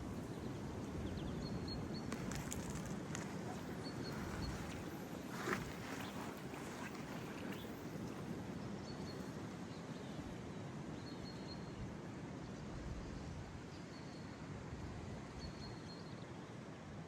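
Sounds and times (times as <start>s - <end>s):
wind: 0.0s - 17.0s
river flowing: 2.1s - 8.6s.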